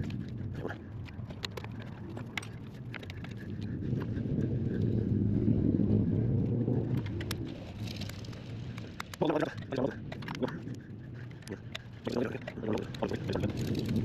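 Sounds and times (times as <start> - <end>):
sharp clicks: 8.0 - 14.0.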